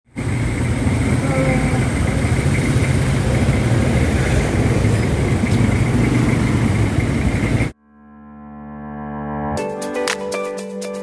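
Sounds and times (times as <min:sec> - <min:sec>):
scooter engine running: 0:00.1 - 0:07.7.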